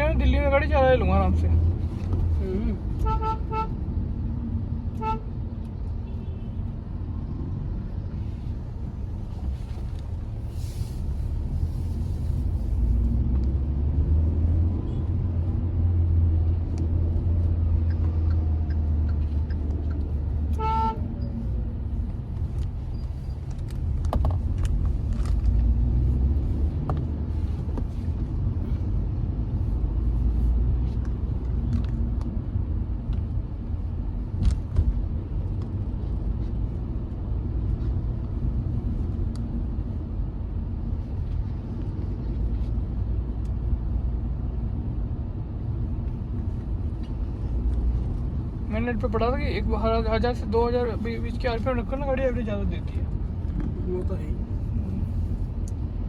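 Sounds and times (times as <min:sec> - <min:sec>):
car engine and tyre drone: 0:00.0 - 0:48.8
car horn toots: 0:03.0 - 0:03.7, 0:20.5 - 0:21.0.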